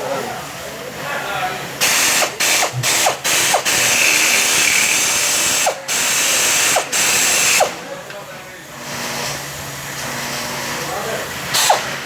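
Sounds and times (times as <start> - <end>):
electric drill drilling: 1.8 - 7.8, 11.5 - 12.0.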